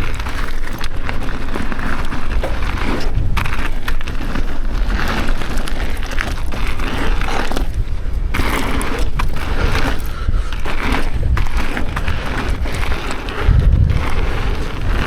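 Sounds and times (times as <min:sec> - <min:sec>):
bike rattling: 0:00.0 - 0:15.0
bike tyres rolling on dirt: 0:00.0 - 0:15.0
wind buffeting microphone: 0:00.0 - 0:15.0.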